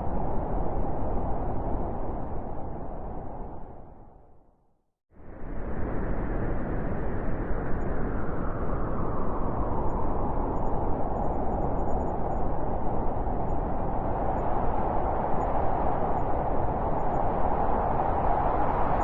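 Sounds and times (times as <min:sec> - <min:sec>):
blizzard wind rushing: 0:00.0 - 0:04.2, 0:05.2 - 0:19.0
wind howling: 0:05.2 - 0:19.0.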